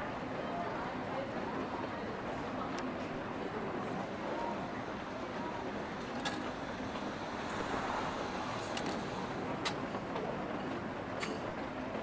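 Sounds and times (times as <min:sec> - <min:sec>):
steady rain hiss: 0:06.9 - 0:09.4.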